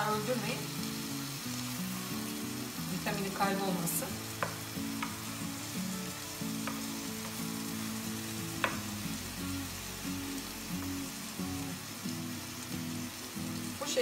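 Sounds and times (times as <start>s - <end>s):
vegetables sizzling in a pan: 0.0s - 14.0s
wooden spoon knocking pan: 4.4s - 5.2s, 6.6s - 7.4s, 8.6s - 8.9s.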